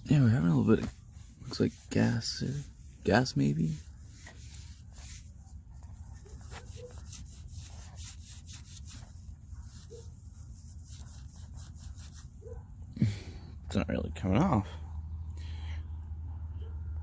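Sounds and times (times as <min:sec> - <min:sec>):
rag wiping engine: 0:00.0 - 0:12.6.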